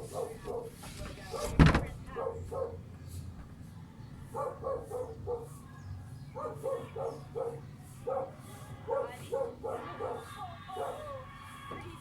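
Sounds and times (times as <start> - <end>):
dog yapping: 6.4 - 11.2.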